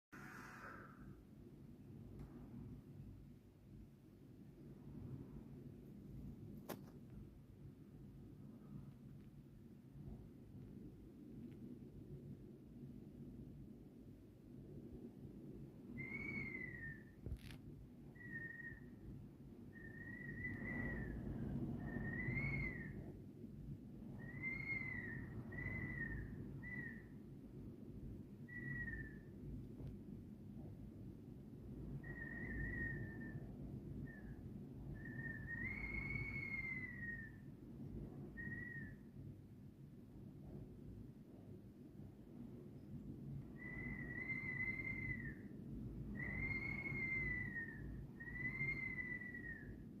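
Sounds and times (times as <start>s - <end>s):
low rumble of wind: 0.1s - 50.0s
wind whistling in gusts: 0.1s - 50.0s.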